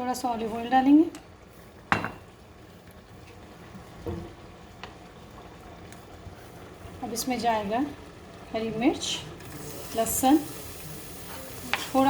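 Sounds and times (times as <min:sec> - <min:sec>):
oil hissing in pan: 0:09.4 - 0:12.0.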